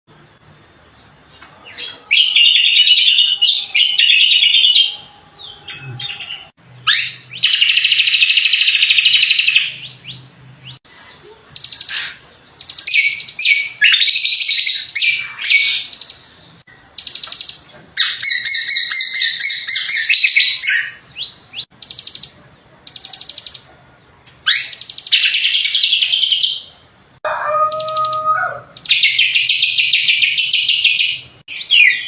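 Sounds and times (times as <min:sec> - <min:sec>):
songbird singing rapid trills: 0:11.5 - 0:23.7.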